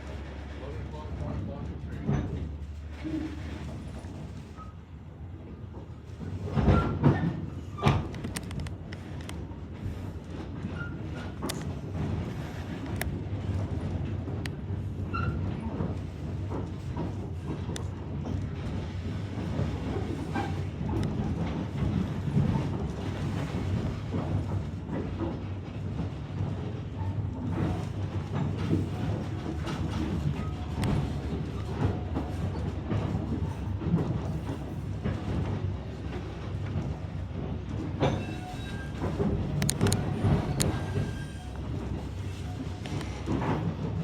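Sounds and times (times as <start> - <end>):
train rumbling on rails: 0.0 - 44.0
sharp clicks and clanks: 39.2 - 40.9.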